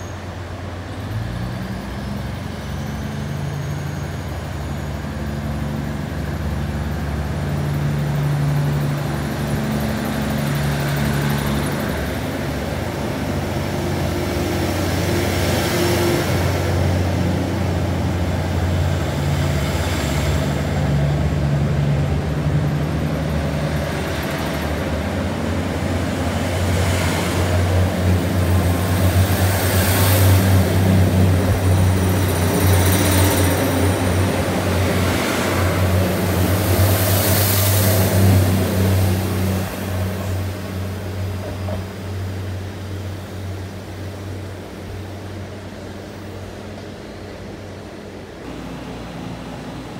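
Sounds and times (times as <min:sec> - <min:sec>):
diesel train engine drone: 0:00.0 - 0:49.9.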